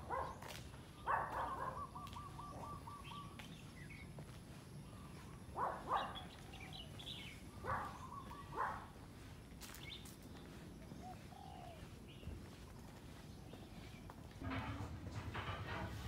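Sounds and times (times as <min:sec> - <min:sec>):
birds calling and chirping: 0:00.0 - 0:14.4
loud short bird calls: 0:00.2 - 0:04.0.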